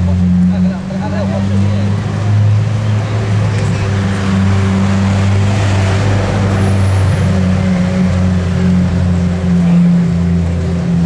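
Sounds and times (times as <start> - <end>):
car engine low drone: 0.0 - 11.0.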